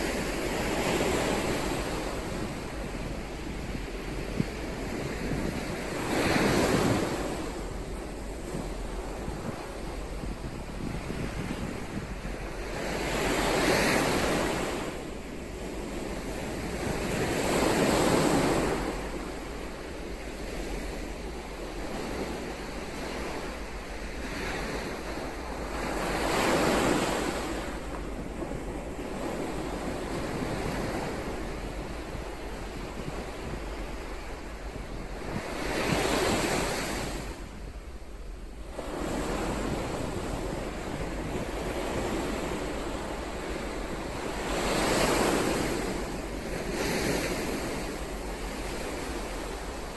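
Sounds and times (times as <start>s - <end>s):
ocean waves breaking on shore: 0.0s - 49.9s.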